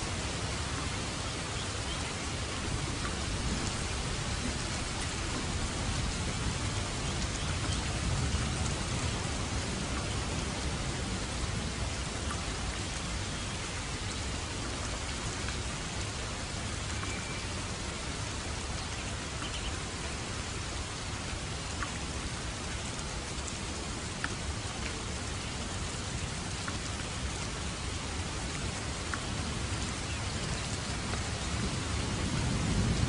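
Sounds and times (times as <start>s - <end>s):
steady rain hissing: 0.0s - 33.0s.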